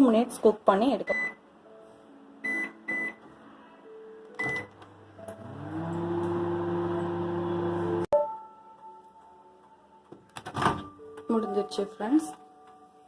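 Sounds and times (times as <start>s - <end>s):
keypad beeps: 1.1s - 1.4s, 2.4s - 3.2s, 4.4s - 4.7s
microwave motor hum: 4.4s - 8.1s.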